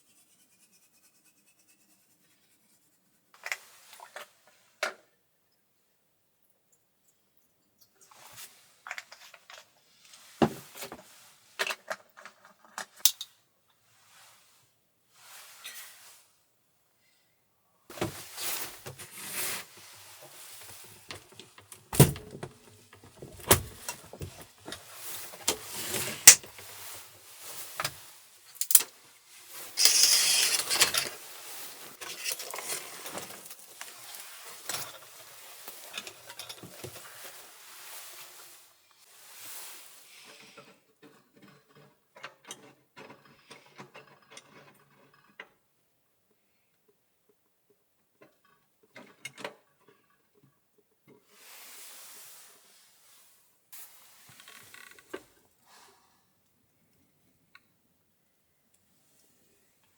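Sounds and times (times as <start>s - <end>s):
loud rustling: 29.8s - 31.2s
objects clicking and knocking: 29.8s - 31.2s, 32.0s - 34.0s.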